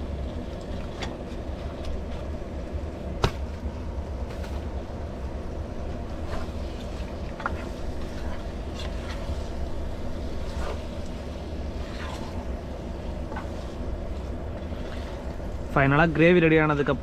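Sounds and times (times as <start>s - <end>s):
steady low rumble: 0.0s - 17.0s
utensil scraping cooking pot: 6.1s - 15.8s.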